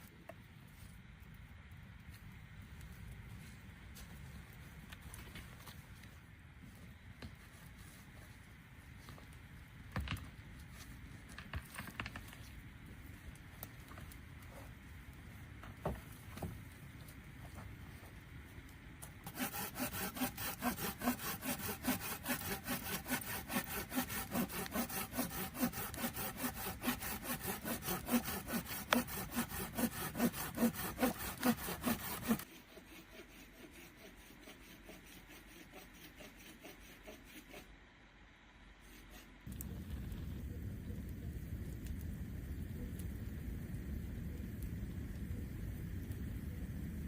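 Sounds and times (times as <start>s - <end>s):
hand saw cutting wood: 19.2s - 37.7s, 38.8s - 39.3s.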